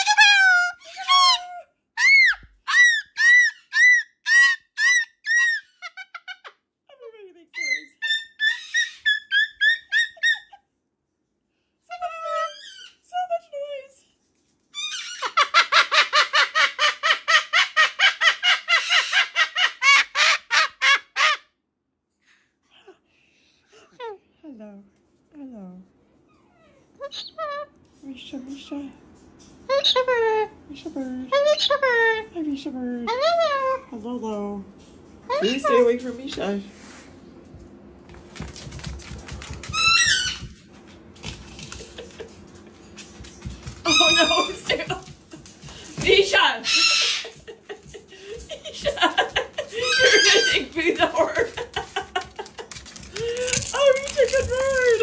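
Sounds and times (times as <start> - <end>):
parrot squawking: 0.0 - 6.5, 7.6 - 10.6, 14.8 - 21.4, 27.0 - 27.7, 31.3 - 31.9, 39.7 - 40.5, 43.9 - 44.8, 46.6 - 47.4, 49.7 - 50.8.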